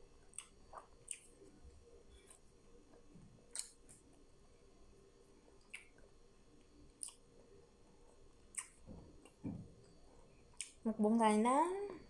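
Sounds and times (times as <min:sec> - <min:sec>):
person chewing: 0:00.2 - 0:04.2, 0:05.6 - 0:06.1, 0:06.9 - 0:07.2, 0:08.1 - 0:09.4, 0:10.5 - 0:10.8.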